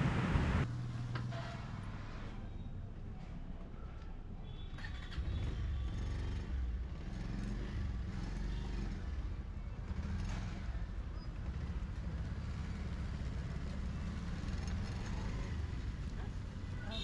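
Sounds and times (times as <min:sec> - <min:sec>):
motorcycle engine pulling away: 0:04.8 - 0:16.1.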